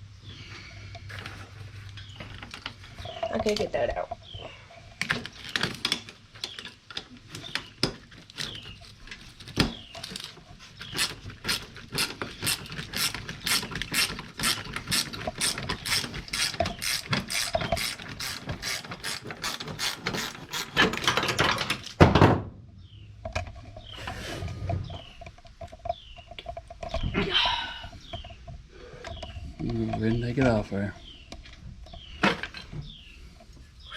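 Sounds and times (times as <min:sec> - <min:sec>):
ratchet wrench clicking: 0:12.5 - 0:20.8.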